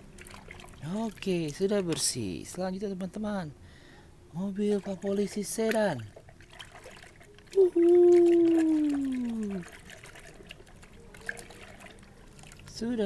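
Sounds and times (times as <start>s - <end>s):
trickling water: 0.0s - 13.0s
person humming: 7.6s - 9.7s.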